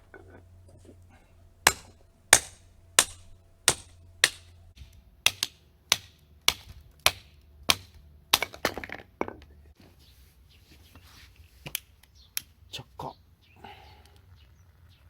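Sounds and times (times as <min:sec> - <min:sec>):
hatchet chopping wood: 0:00.0 - 0:09.0.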